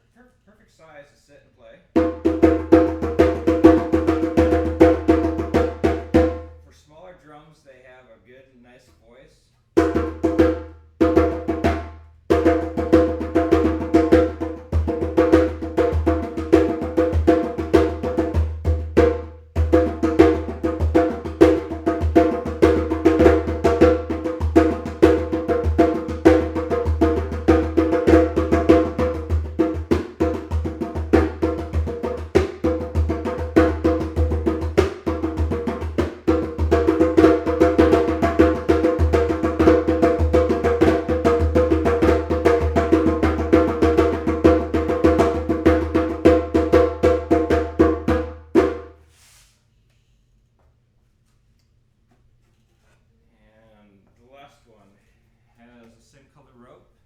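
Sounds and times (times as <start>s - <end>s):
djembe played by hand: 2.0s - 6.6s, 9.8s - 49.0s.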